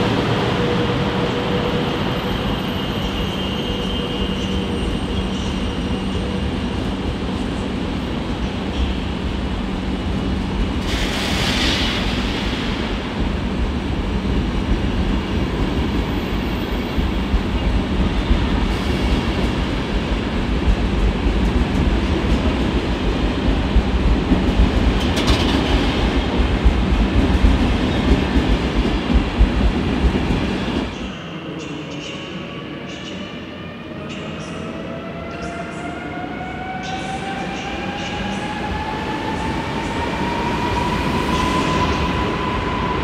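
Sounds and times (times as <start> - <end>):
train wheels rumbling on rail: 0.0 - 31.2.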